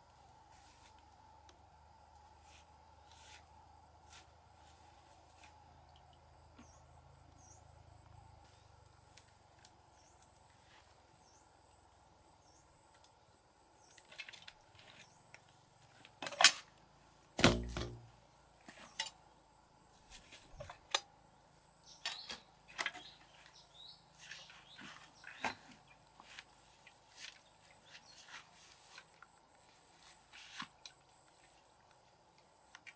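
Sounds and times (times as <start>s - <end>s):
knocks and clicks of handling: 17.4s - 18.1s
loud thumps: 17.4s - 18.1s.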